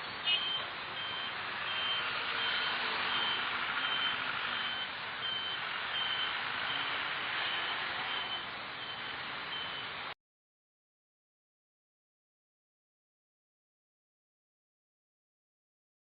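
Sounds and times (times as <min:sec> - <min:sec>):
truck reversing alarm beeping: 0:00.0 - 0:10.1
vehicle noise: 0:00.0 - 0:10.2.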